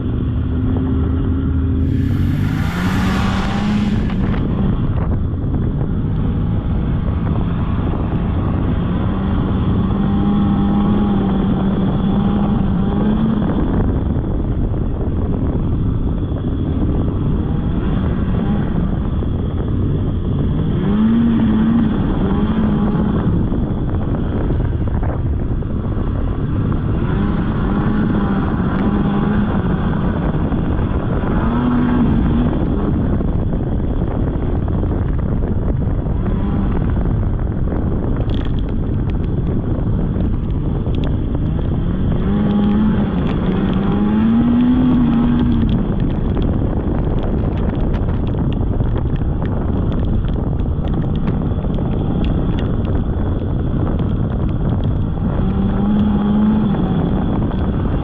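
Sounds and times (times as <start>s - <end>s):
snowmobile engine revving: 0.8s - 5.0s, 41.5s - 46.0s.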